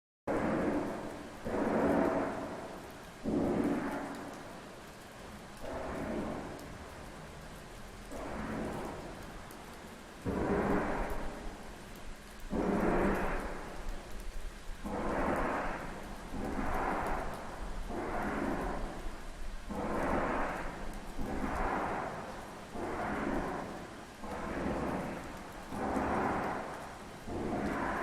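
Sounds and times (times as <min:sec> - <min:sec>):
pulsing rushing noise: 0:08.0 - 0:11.7, 0:14.8 - 0:28.0.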